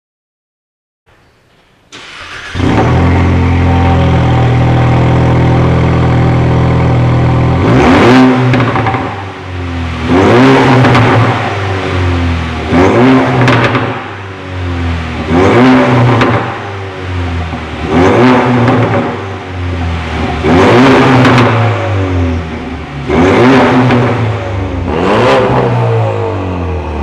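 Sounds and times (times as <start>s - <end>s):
car engine idling and revving: 1.9s - 27.0s
exhaust popping crackle: 13.0s - 14.2s.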